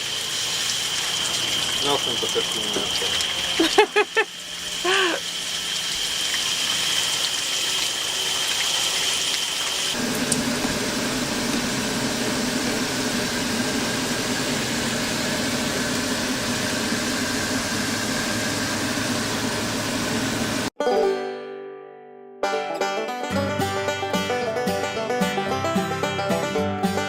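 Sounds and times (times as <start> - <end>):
shower water running: 0.0 - 20.7.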